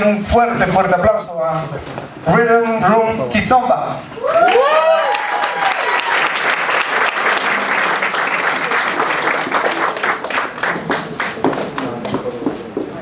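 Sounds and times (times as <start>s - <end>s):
audience applauding: 4.3s - 12.2s.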